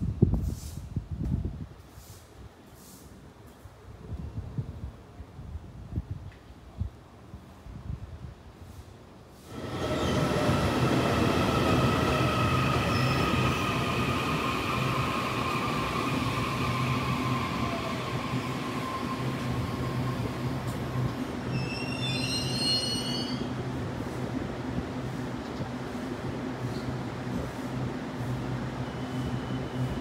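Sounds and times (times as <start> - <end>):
train humming and whining: 9.4 - 30.0
high wavering squeals: 12.2 - 20.4, 21.5 - 23.5.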